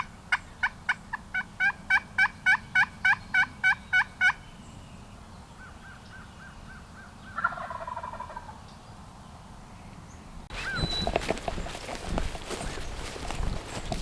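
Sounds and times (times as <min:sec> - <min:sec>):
turkey yelping: 0:00.0 - 0:04.4, 0:07.4 - 0:08.5, 0:10.5 - 0:12.8.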